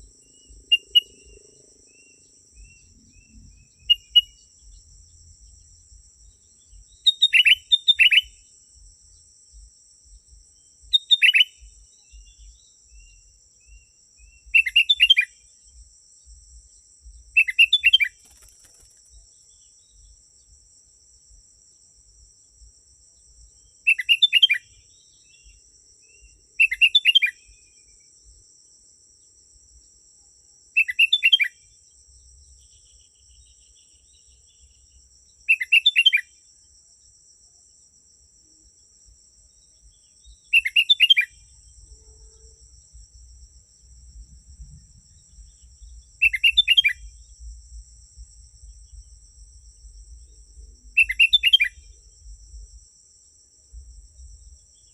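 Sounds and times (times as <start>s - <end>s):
bird singing chirpy phrases: 0.0s - 4.9s, 6.2s - 8.4s, 10.6s - 15.3s, 17.4s - 20.2s, 23.6s - 27.6s, 30.8s - 31.6s, 32.5s - 36.3s, 39.7s - 41.6s, 45.3s - 47.1s, 50.9s - 51.8s.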